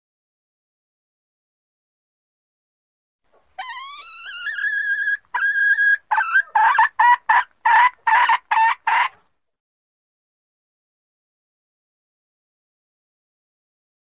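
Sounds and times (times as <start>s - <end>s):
junglefowl hen calling: 3.4s - 9.2s.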